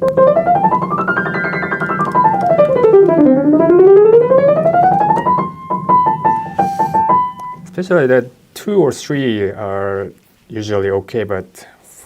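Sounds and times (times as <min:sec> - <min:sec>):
piano scale runs: 0:00.0 - 0:07.9.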